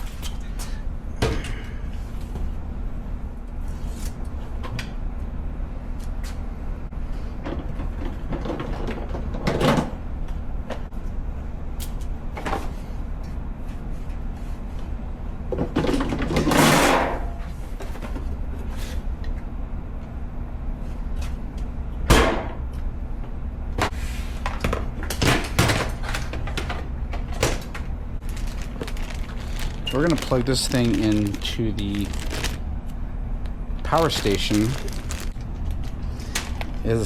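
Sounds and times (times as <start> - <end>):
steady low rumble: 27.8 - 37.0.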